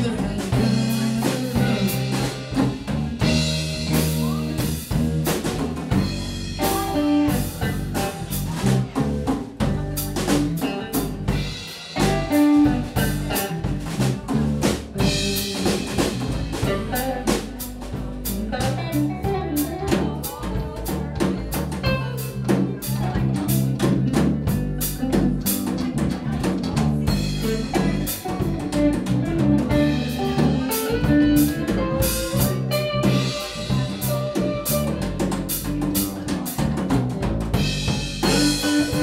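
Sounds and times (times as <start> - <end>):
drum kit with rimshots: 0.0 - 39.0
instrumental band music: 0.0 - 39.0.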